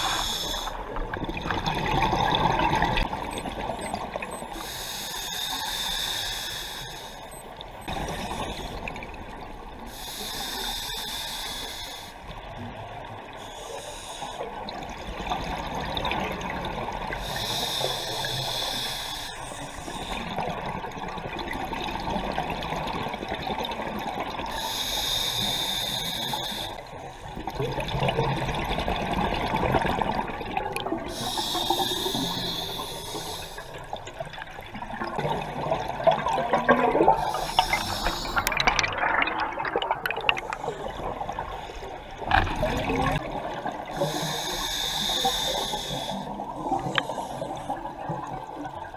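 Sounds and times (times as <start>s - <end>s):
regulator hissing inhalation: 0.0s - 0.8s, 4.6s - 7.2s, 9.9s - 12.2s, 17.2s - 20.1s, 24.6s - 26.8s, 31.1s - 33.8s, 37.2s - 38.6s, 44.0s - 46.3s
exhaled bubbles gurgling: 0.0s - 4.5s, 27.3s - 48.9s.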